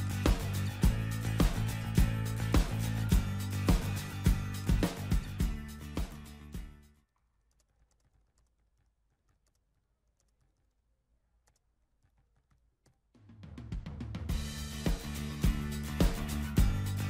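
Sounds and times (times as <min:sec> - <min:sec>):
music with drums: 0:00.0 - 0:06.9, 0:13.2 - 0:17.0
keyboard typing: 0:07.4 - 0:13.0.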